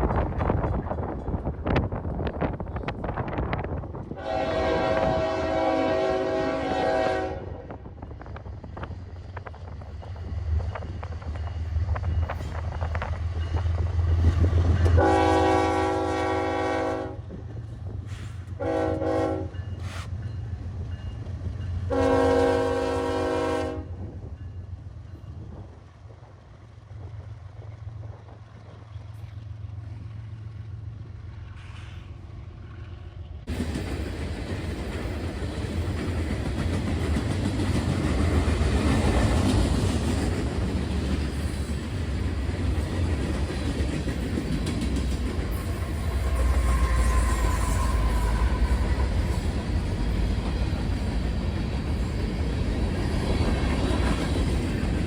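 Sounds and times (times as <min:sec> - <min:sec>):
train wheels rushing on rails: 0:00.0 - 0:55.0
locomotive air horn blasts: 0:04.2 - 0:07.7, 0:14.9 - 0:17.2, 0:18.6 - 0:20.1, 0:21.9 - 0:24.0.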